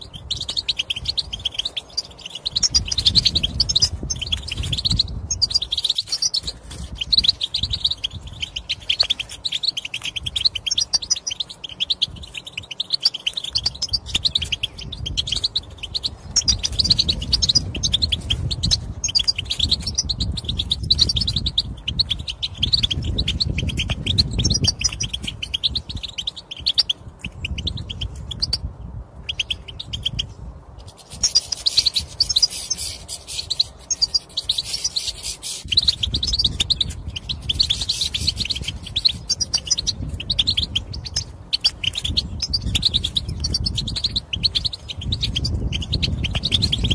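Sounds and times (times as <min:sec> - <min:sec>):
goldfinch chattering and twittering: 0:00.0 - 0:46.9.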